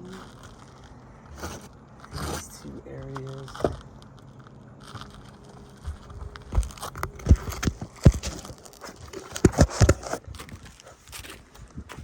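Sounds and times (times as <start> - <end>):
gritty scuffs: 0.0 - 12.0
footsteps on a shingle roof: 4.8 - 12.0.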